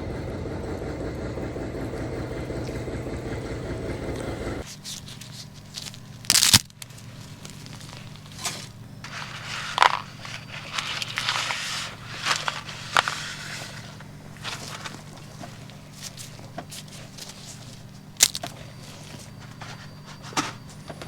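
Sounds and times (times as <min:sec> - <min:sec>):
engine drone: 0:00.0 - 0:21.0
low steady hum: 0:00.0 - 0:21.0
packaging crinkling: 0:04.6 - 0:20.8.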